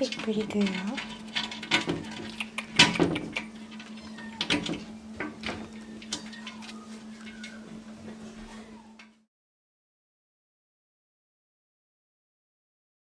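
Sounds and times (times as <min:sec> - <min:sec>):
sharp clicks and knocks: 0:00.0 - 0:06.8
steady low hum: 0:00.0 - 0:09.1
cat meowing: 0:03.9 - 0:04.9, 0:05.5 - 0:07.8, 0:08.4 - 0:09.1.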